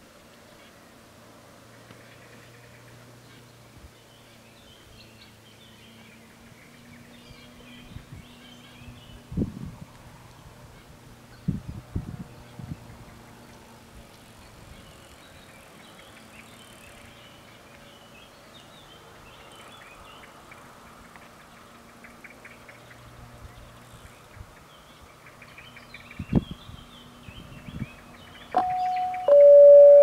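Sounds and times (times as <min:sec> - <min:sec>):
birds chirping: 0:01.6 - 0:09.3, 0:12.4 - 0:30.0
faint hum: 0:28.6 - 0:30.0.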